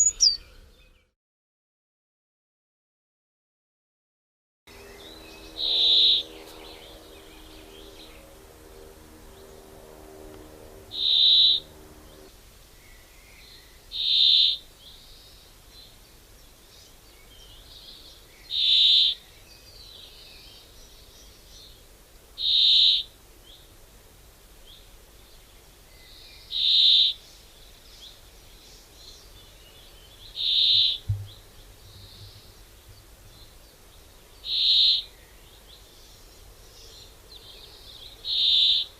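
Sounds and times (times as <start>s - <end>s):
bird short high call: 0.0s - 0.7s.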